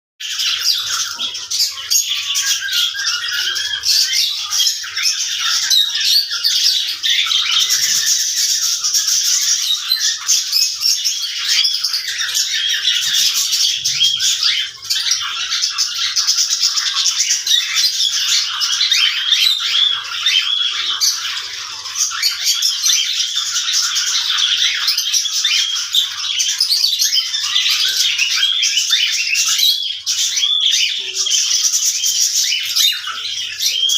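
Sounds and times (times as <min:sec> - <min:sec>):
cockatiels chattering and squawking: 0:00.2 - 0:33.9.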